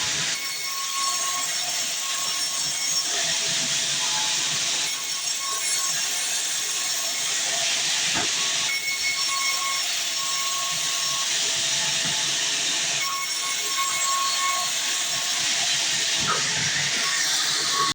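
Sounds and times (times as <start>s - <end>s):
bandsaw cutting log: 9.8s - 17.9s.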